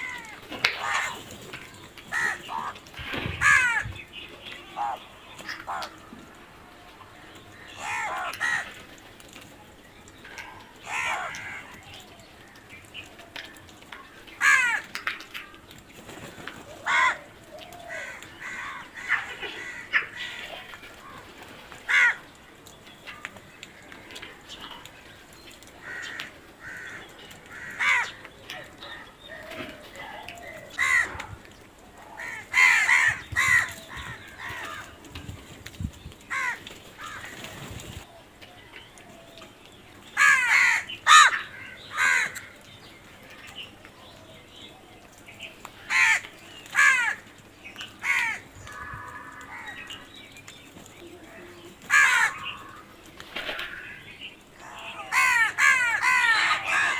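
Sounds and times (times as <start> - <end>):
crows cawing: 0.0 - 4.0, 7.5 - 8.9, 10.3 - 12.7, 13.3 - 15.7, 16.3 - 22.4, 25.7 - 35.0, 36.3 - 37.5, 40.2 - 42.7, 45.8 - 50.1, 51.8 - 56.9.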